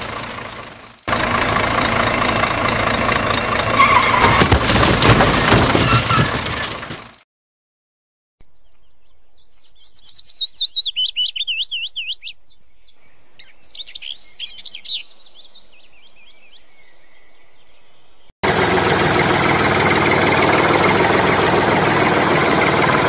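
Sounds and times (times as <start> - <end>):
songbird singing: 8.4 - 18.3.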